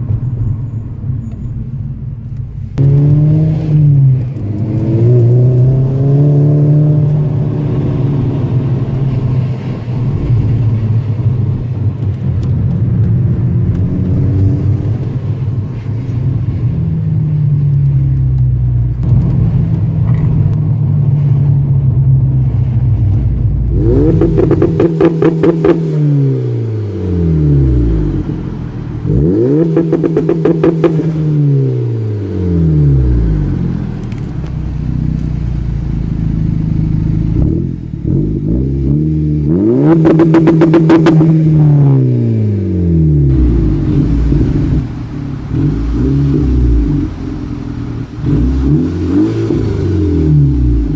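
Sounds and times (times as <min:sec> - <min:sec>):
car engine revving hard: 0:02.8 - 0:11.3, 0:23.7 - 0:34.2, 0:37.1 - 0:50.9.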